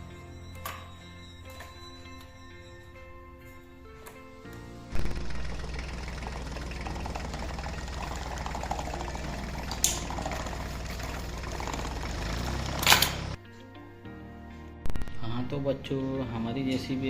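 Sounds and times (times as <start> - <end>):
toy motor humming and clattering: 4.9 - 13.4.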